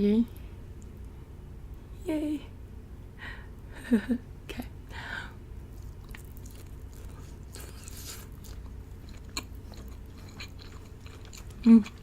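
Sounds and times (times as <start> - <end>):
steady low hum: 0.0 - 12.0
close chewing mouth sounds: 5.7 - 12.0.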